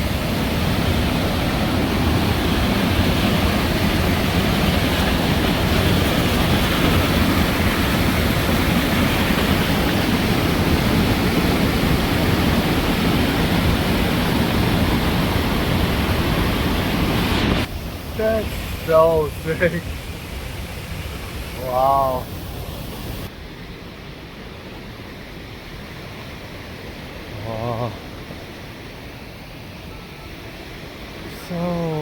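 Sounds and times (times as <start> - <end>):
waterfall rushing: 0.0 - 23.3.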